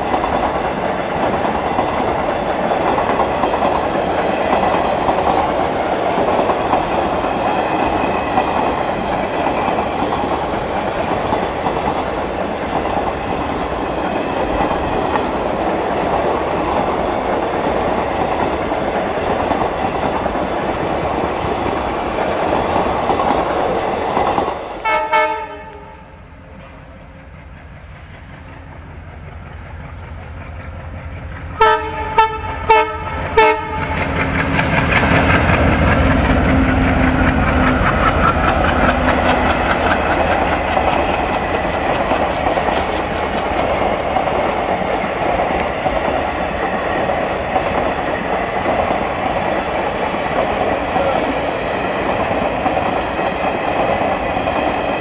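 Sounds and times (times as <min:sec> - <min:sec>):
train coaches rumbling past: 0:00.0 - 0:55.0
train horn blasts: 0:24.8 - 0:27.1, 0:31.6 - 0:34.0.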